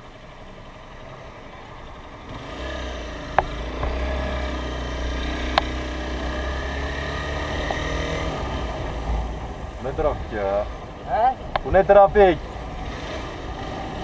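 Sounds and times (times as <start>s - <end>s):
motorcycle running: 0.0s - 14.0s.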